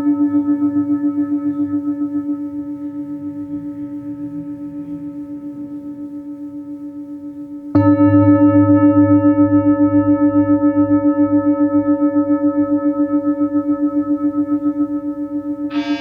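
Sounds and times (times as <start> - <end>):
singing bowl ringing: 15.7 - 16.0.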